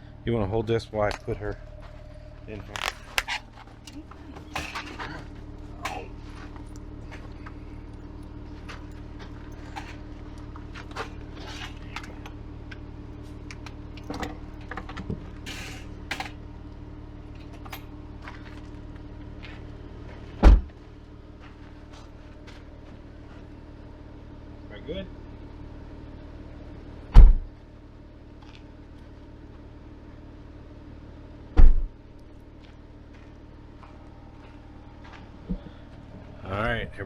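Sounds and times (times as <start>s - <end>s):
vehicle engine idling: 0.0s - 37.0s
light clicks and metallic rattles: 1.0s - 19.6s
loud heavy thump: 20.4s - 20.7s, 27.2s - 27.5s.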